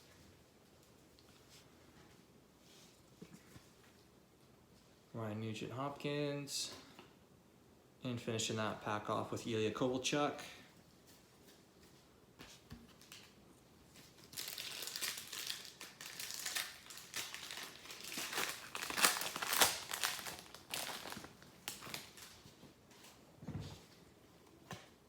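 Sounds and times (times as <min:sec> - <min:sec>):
foil wrapper tearing and crinkling: 0:14.0 - 0:22.4.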